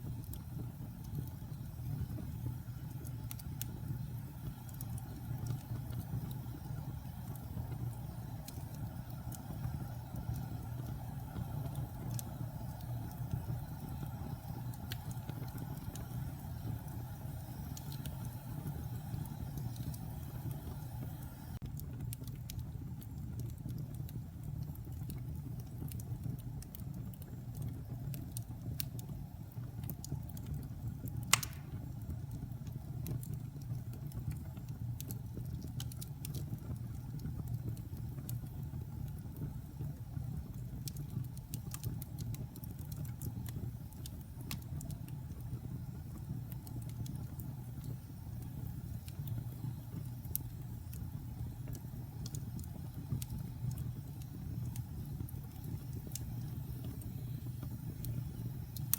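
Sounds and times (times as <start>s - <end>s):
burning wood crackling: 0.0s - 39.7s
fire flames rumbling: 0.0s - 58.9s
loud sharp pop: 31.3s - 31.8s.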